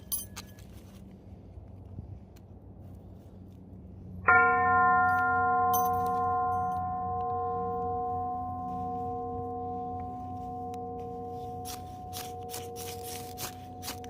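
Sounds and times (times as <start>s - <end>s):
singing bowl bell ringing: 4.3s - 13.8s.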